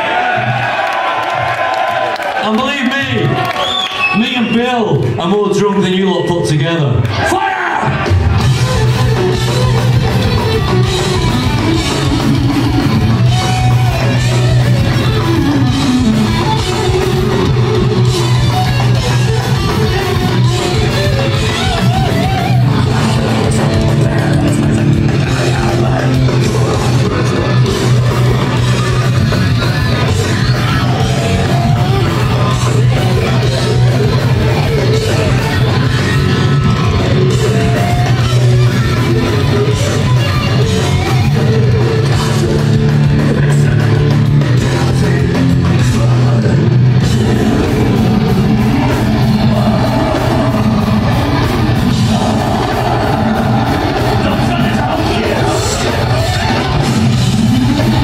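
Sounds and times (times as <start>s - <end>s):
death metal band playing live: 0.0s - 58.0s.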